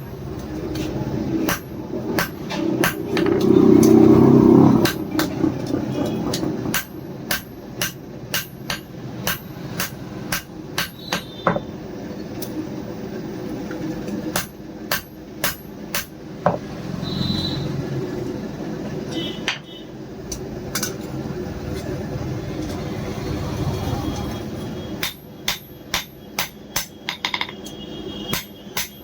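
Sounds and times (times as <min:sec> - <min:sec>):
loud rough noise: 0:00.0 - 0:06.8
hammer striking steel on anvil: 0:01.4 - 0:04.0, 0:06.7 - 0:11.7, 0:14.3 - 0:16.6, 0:25.0 - 0:29.0.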